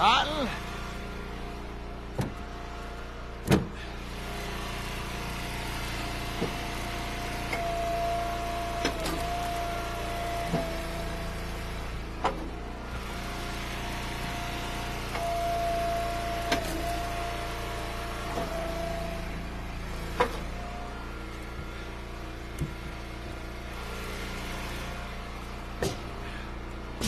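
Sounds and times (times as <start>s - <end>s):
hydraulic splitter whine: 0.0s - 27.0s
log splitter engine running: 0.0s - 27.0s
firewood knocks: 25.8s - 26.0s.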